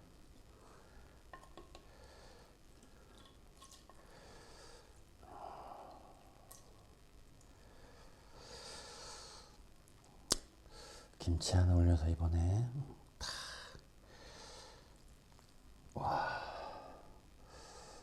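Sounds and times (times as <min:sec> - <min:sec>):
soft chewing: 0:02.7 - 0:04.1, 0:05.8 - 0:07.6, 0:14.9 - 0:15.7
mouth and utensil clicks: 0:09.9 - 0:10.5.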